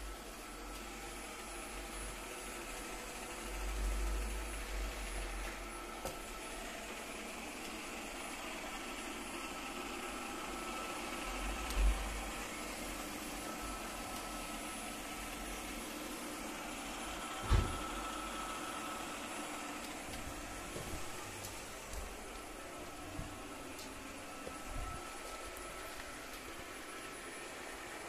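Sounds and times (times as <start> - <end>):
robot vacuum whirring: 0.0 - 28.0.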